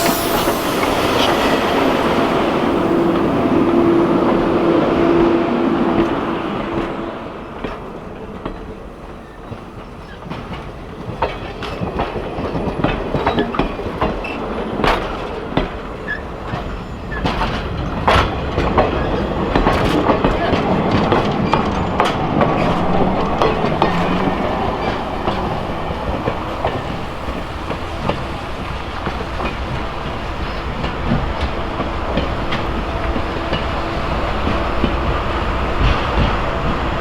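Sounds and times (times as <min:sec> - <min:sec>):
held tone: 0:00.0 - 0:04.9
train running noise: 0:00.0 - 0:37.0
wheels clacking over rails: 0:07.6 - 0:37.0.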